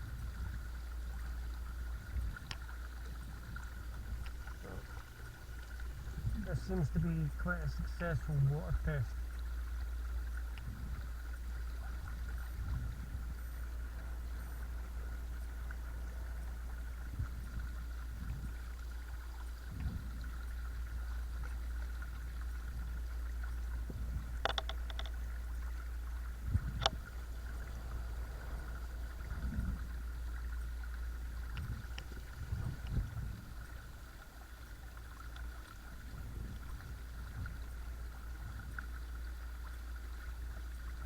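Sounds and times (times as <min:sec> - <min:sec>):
water lapping along hull: 0:00.0 - 0:41.0.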